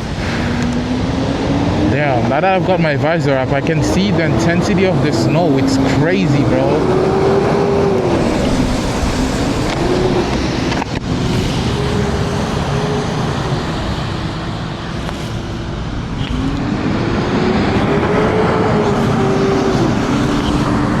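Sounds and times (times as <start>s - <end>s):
wind and wet road noise: 0.0s - 21.0s
electric scooter motor whining: 7.4s - 21.0s.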